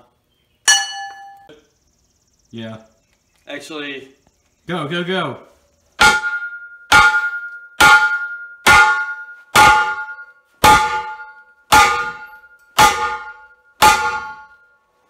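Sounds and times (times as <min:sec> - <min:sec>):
metal tank struck ringing: 0:00.7 - 0:01.6, 0:06.0 - 0:14.8.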